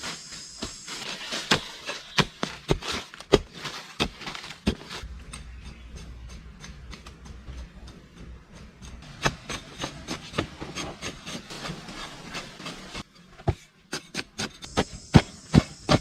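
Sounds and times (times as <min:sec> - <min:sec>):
faint high whine: 0:00.0 - 0:02.1
rubbing and scraping: 0:00.0 - 0:14.9.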